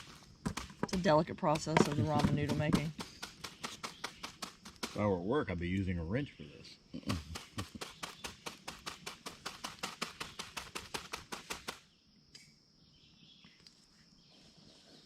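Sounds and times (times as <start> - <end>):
rapid sharp taps: 0.4 - 5.0, 7.1 - 11.8.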